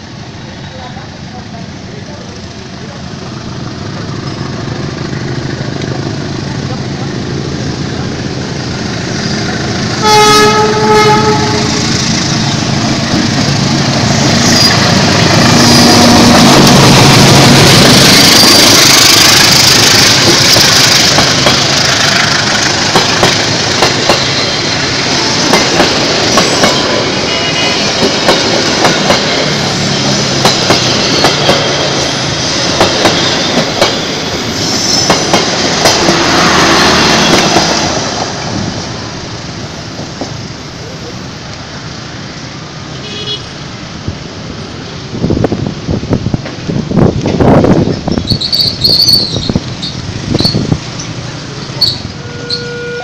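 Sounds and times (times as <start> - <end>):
locomotive passing loudly: 2.0 - 42.9
train horn: 10.0 - 11.8, 52.2 - 53.0
wheels clacking over rail joints: 12.0 - 39.0.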